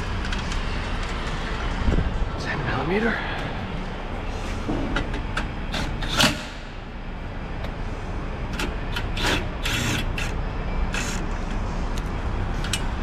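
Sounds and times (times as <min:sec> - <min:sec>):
steady low hum: 0:00.0 - 0:13.0
tools and car parts clicking: 0:04.9 - 0:06.6, 0:08.5 - 0:13.0.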